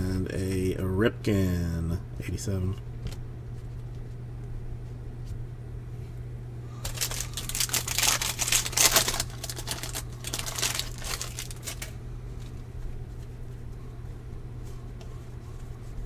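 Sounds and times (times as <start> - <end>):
foil wrapper crinkling and tearing: 6.8 - 12.6.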